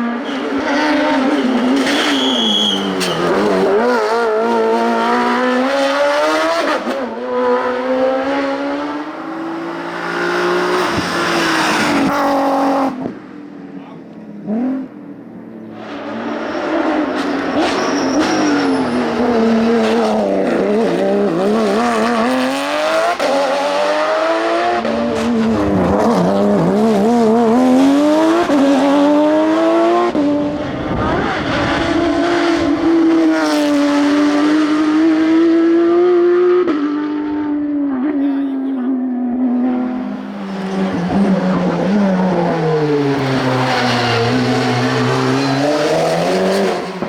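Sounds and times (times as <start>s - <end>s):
race car engine revving: 0.0s - 13.2s, 15.8s - 47.0s.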